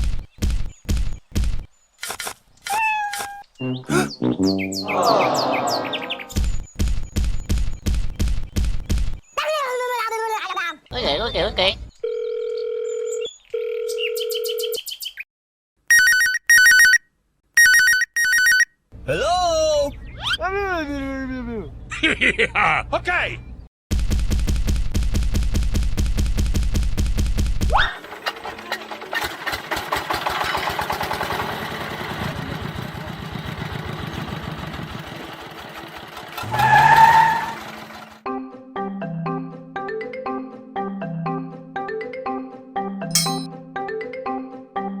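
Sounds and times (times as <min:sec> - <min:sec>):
electronic phone ringtone: 0:12.0 - 0:14.8, 0:15.9 - 0:17.0, 0:17.6 - 0:18.7
telephone line tone: 0:12.1 - 0:14.8
small engine puttering: 0:28.0 - 0:36.6.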